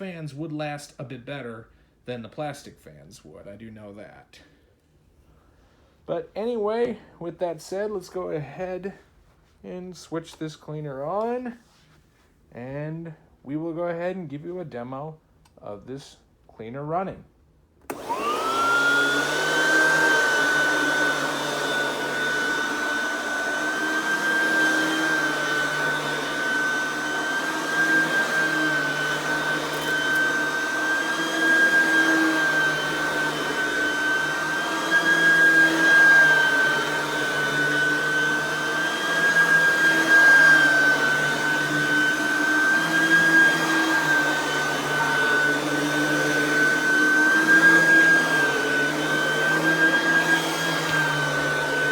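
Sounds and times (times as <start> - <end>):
vacuum cleaner motor whining: 17.9 - 51.9.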